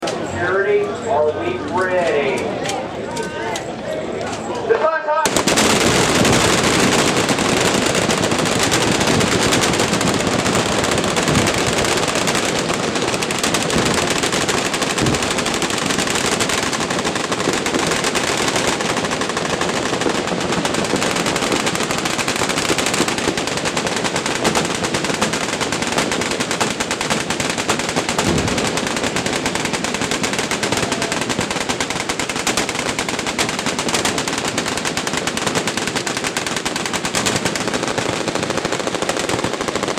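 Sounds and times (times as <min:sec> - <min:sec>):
machine guns firing: 0:05.2 - 0:39.9.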